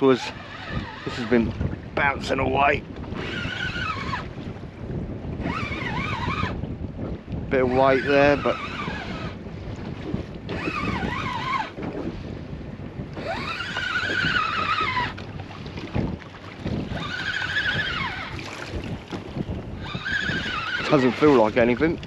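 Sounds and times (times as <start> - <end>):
fishing reel gears whining: 0.0 - 1.5, 3.1 - 4.3, 5.4 - 6.6, 7.6 - 9.4, 10.5 - 11.8, 13.2 - 15.2, 16.8 - 18.4, 19.8 - 21.8
wind noise on microphone: 0.0 - 22.0.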